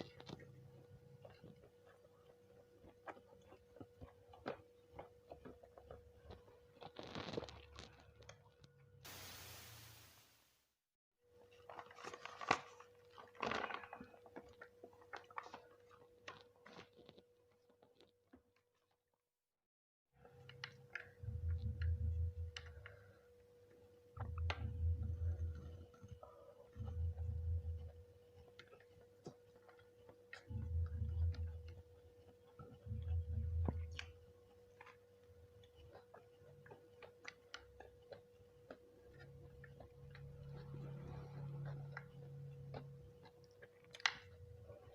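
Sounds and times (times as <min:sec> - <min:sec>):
soft eating clicks and taps: 0:00.0 - 0:08.7, 0:20.2 - 0:44.9
person chewing and crunching food: 0:00.0 - 0:08.8, 0:11.4 - 0:19.2, 0:20.2 - 0:44.9.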